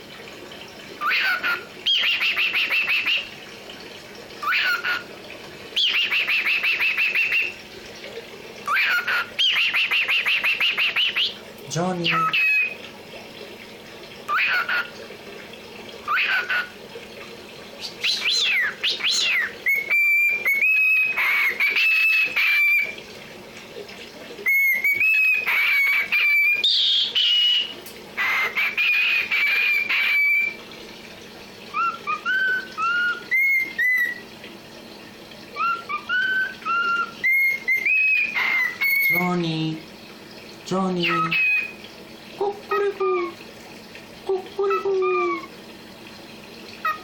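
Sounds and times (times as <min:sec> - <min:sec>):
cockatiel whistling: 0:35.6 - 0:39.1.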